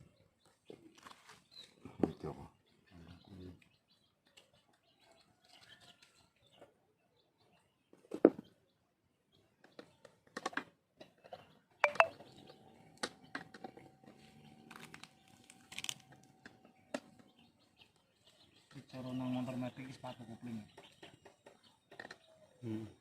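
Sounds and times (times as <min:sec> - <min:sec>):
faint high tone: 0:11.8 - 0:12.1.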